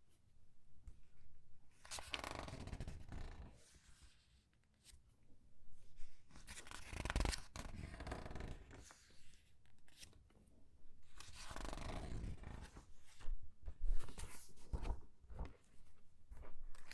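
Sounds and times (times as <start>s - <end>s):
paper pages rustling: 12.6s - 16.9s.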